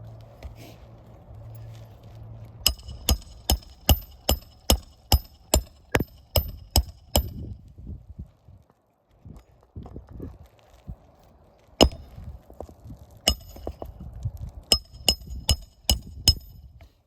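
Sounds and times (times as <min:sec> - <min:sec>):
low steady hum: 0:00.0 - 0:08.3, 0:11.0 - 0:16.8
hammer striking metal: 0:02.7 - 0:07.4, 0:11.8 - 0:12.0, 0:13.3 - 0:13.8, 0:14.7 - 0:16.6.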